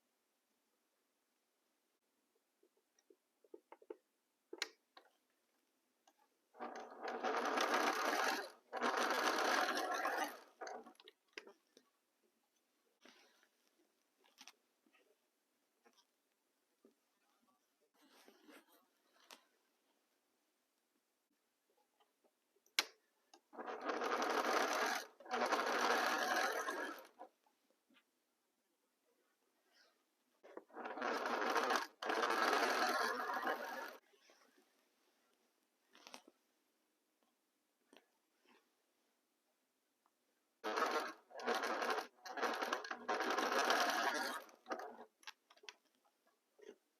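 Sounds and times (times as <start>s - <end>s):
sewing machine stitching: 6.6s - 11.6s, 23.5s - 27.4s, 30.4s - 34.0s, 40.6s - 45.7s.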